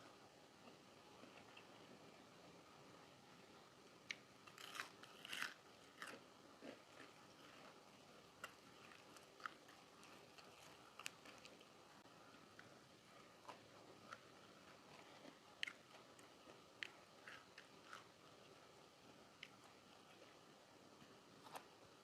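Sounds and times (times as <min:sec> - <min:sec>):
crunchy bites: 0:04.1 - 0:07.2
chewing with crisp clicks: 0:08.4 - 0:11.7, 0:12.5 - 0:18.6.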